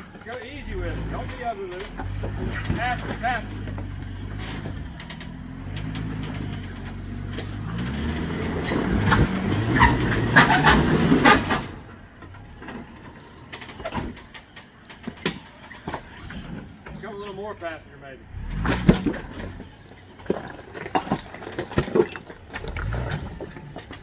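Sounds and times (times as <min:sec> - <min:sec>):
tyres crunching on rock: 0:00.0 - 0:11.1, 0:18.4 - 0:24.0
off-road vehicle engine revving: 0:00.0 - 0:24.0.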